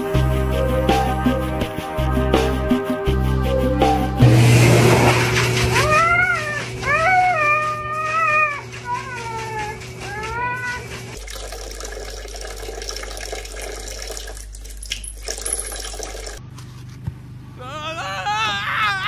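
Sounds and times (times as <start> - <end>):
dog howling: 5.8 - 10.8.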